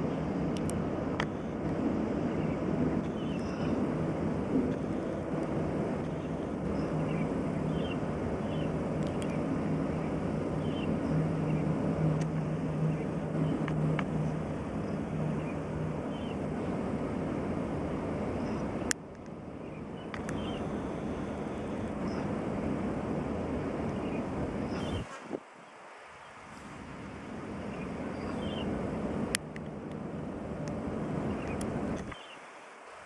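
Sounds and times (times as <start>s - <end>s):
rumbling wash: 0.0s - 33.0s
motor humming: 19.9s - 25.3s.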